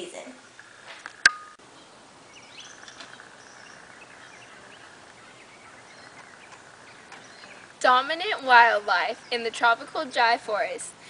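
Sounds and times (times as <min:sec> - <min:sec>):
faint outdoor background noise: 0:00.0 - 0:11.0
high bird chirps: 0:00.6 - 0:07.8.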